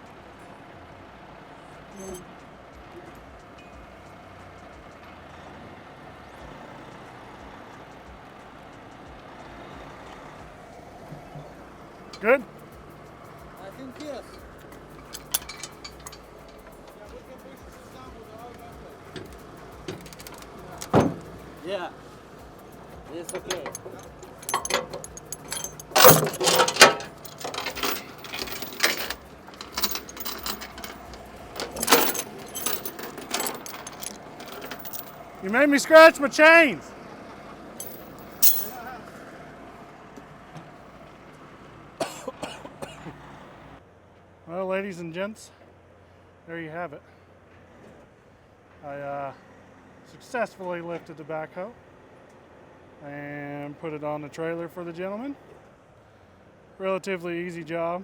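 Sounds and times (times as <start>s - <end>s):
metal chains clinking: 2.0s - 2.2s, 13.8s - 18.4s, 19.0s - 21.7s, 22.5s - 36.4s, 37.8s - 39.0s
loud metal clanks: 14.9s - 17.0s, 19.2s - 21.4s, 23.2s - 35.2s.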